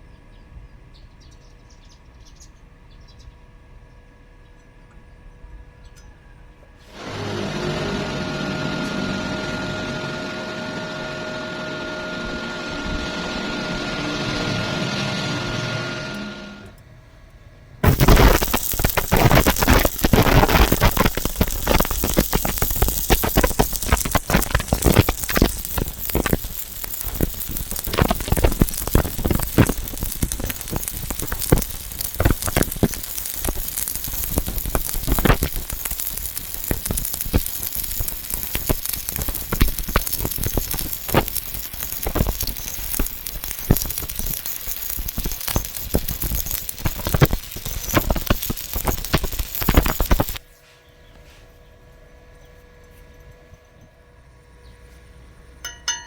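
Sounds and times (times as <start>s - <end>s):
welding arc crackling and popping: 6.9s - 16.7s, 17.8s - 50.4s.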